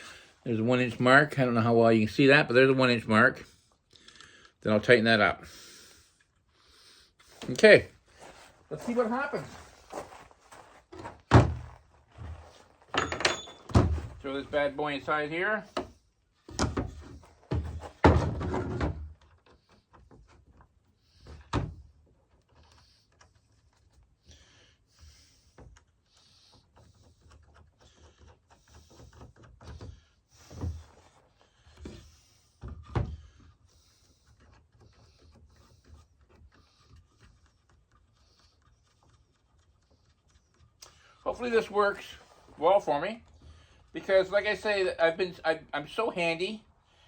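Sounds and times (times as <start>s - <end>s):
faint rustling: 6.2s - 15.7s
wooden jig knocks and clunks: 10.9s - 14.2s, 16.5s - 20.6s.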